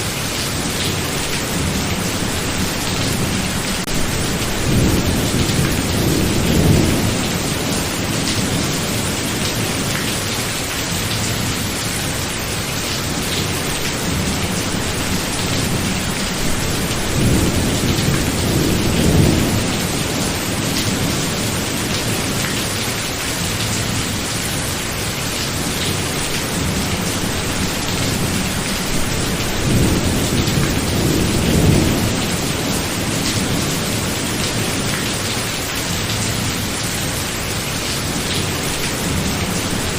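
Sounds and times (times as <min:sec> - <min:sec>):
steady rain: 0:00.0 - 0:39.9
rumbling thunder: 0:03.0 - 0:09.8, 0:14.2 - 0:22.4, 0:26.6 - 0:34.8.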